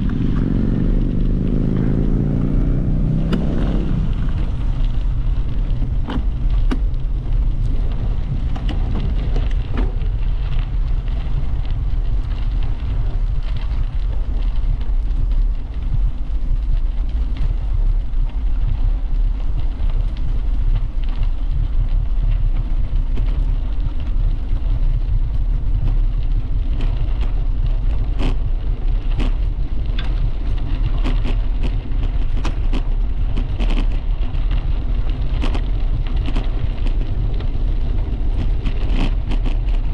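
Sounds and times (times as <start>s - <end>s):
bicycle tyre noise on path: 0.0s - 39.9s
sharp clicks and ticks: 0.0s - 39.9s
wind rumbling on microphone: 0.0s - 39.9s.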